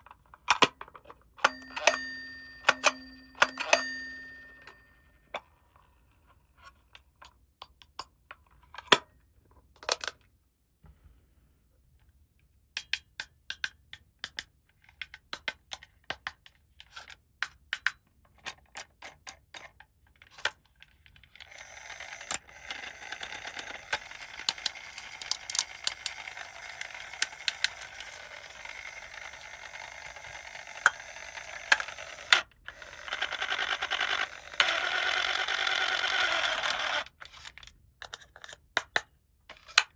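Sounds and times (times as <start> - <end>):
plastic toy pieces clicking: 21.4 - 39.0.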